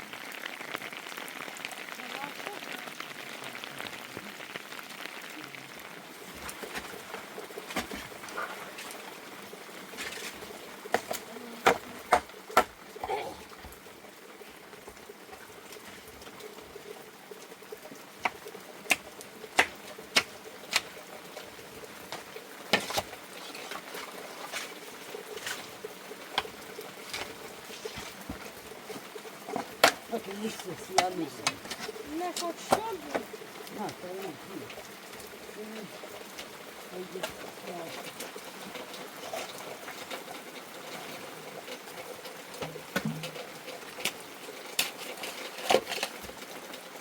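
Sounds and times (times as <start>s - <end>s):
steady rain: 0.0s - 47.0s
sharp taps and knocks: 42.6s - 43.4s.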